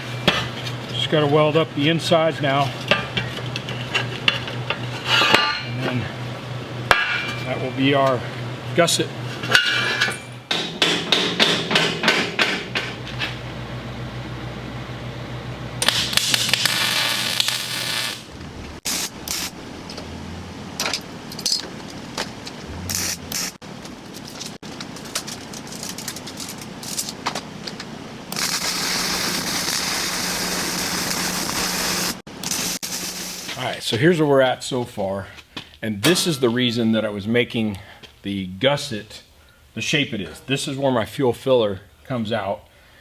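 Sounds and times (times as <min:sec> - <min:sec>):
metal knocks and clanks: 0:09.4 - 0:13.3
welding crackling hiss: 0:15.8 - 0:19.6, 0:22.9 - 0:23.6, 0:28.3 - 0:34.0.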